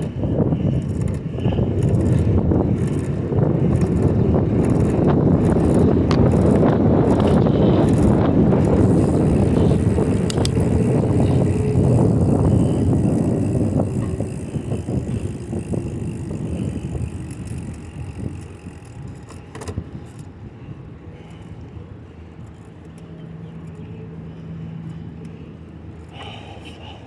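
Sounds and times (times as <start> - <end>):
wind on microphone: 0.0 - 21.2
bicycle tyres rumbling: 0.0 - 27.0.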